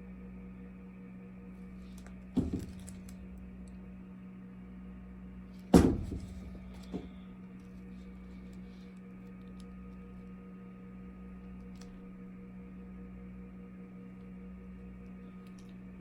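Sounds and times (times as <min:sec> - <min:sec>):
steady low hum: 0:00.0 - 0:16.0
sharp knocks: 0:02.4 - 0:03.4, 0:05.8 - 0:07.2.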